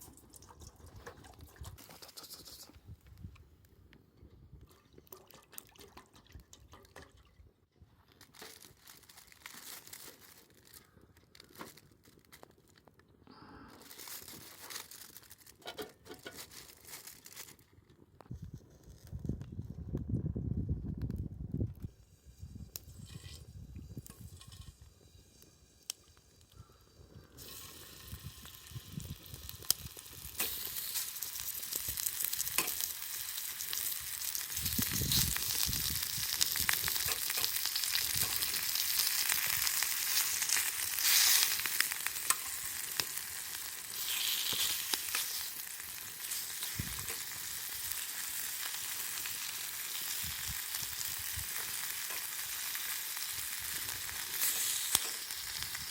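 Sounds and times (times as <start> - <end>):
food sizzling in a pan: 27.4 - 55.9.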